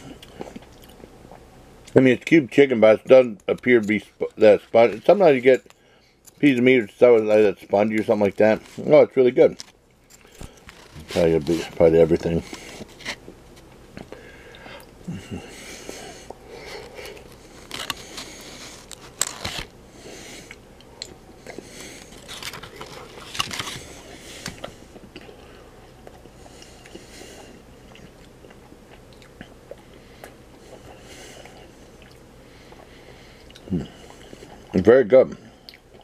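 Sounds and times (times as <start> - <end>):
person chewing: 0.0 - 1.5, 12.4 - 34.7, 35.6 - 36.0.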